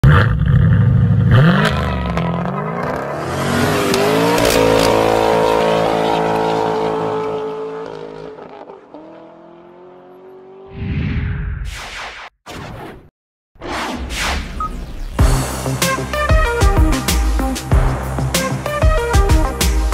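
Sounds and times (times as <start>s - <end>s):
car engine revving: 0.1s - 10.7s.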